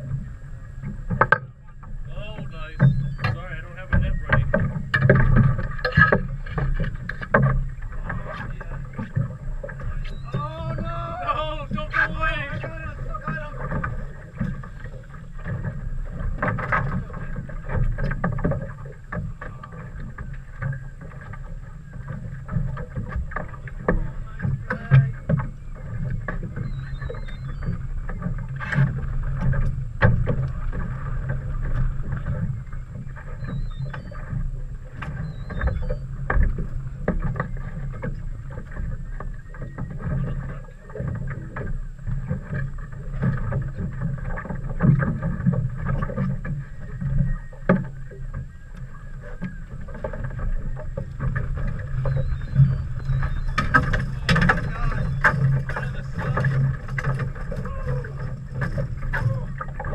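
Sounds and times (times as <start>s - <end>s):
boat motor humming: 0.0s - 59.9s
knocks and splashes: 0.0s - 59.9s.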